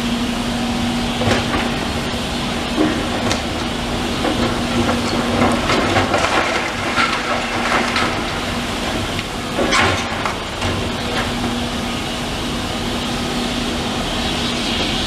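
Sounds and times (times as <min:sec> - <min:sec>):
diesel engine running: 0:00.0 - 0:15.0
debris crunching and clattering: 0:01.2 - 0:11.6.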